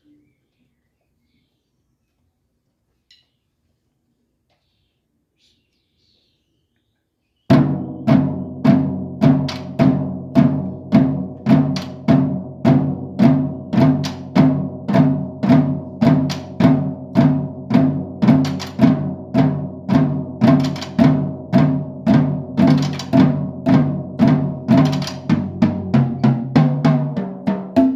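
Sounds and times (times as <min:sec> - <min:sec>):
drum strikes: 0:07.5 - 0:27.9.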